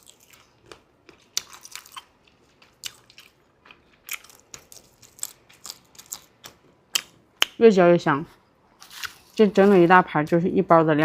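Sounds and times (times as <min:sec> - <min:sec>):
person chewing crunchy food: 0:00.0 - 0:07.2.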